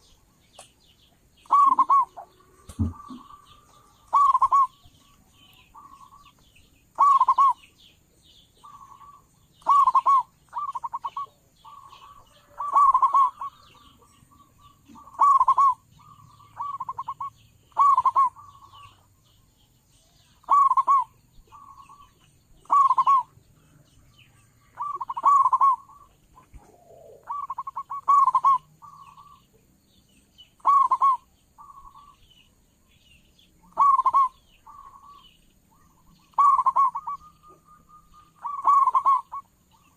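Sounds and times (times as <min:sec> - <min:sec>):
small birds chirping: 0:00.0 - 0:39.9
dove cooing: 0:01.4 - 0:06.3, 0:06.9 - 0:07.7, 0:08.6 - 0:19.0, 0:20.4 - 0:23.4, 0:24.6 - 0:29.5, 0:30.6 - 0:32.2, 0:33.6 - 0:39.9.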